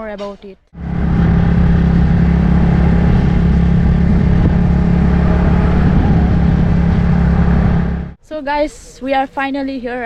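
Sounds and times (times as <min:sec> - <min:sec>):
road noise: 0:00.8 - 0:08.2
vehicle engine drone: 0:00.8 - 0:08.2.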